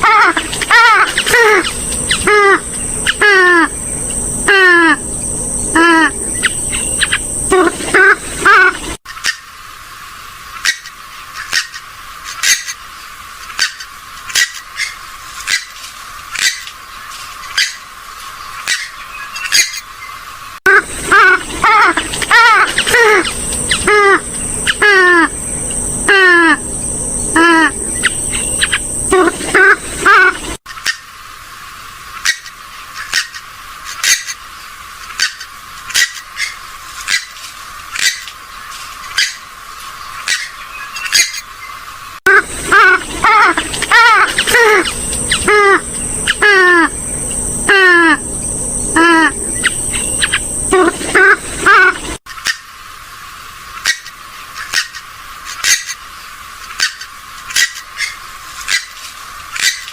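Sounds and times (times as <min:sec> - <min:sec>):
wavering bird call: 0:00.0 - 0:09.5, 0:18.5 - 0:31.1, 0:40.1 - 0:52.7, 0:59.6 - 0:59.9.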